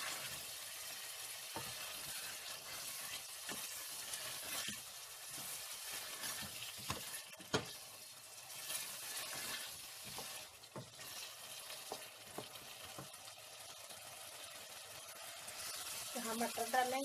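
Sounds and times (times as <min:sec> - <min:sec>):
potatoes sizzling in a pot: 0:00.0 - 0:17.0
spoon knocking and scraping a pot: 0:01.4 - 0:07.8, 0:09.1 - 0:11.2, 0:11.8 - 0:13.2.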